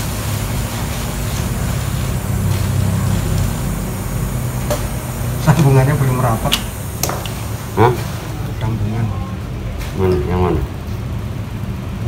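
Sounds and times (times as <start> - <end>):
electric motor humming: 0.0 - 8.8.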